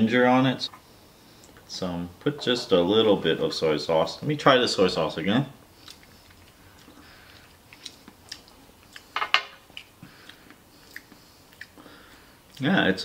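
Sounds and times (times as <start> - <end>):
quiet chewing: 5.7 - 12.7.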